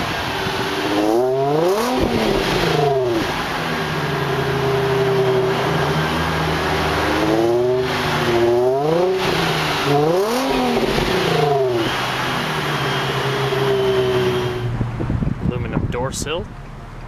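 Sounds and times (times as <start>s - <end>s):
car engine idling: 0.0s - 17.0s
car engine revving: 0.0s - 17.0s.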